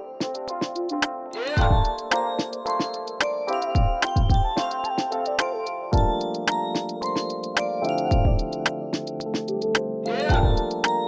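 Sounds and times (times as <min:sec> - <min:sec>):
sustained keyboard chords: 0:00.0 - 0:11.0
drum hits: 0:01.6 - 0:02.0, 0:03.8 - 0:04.6.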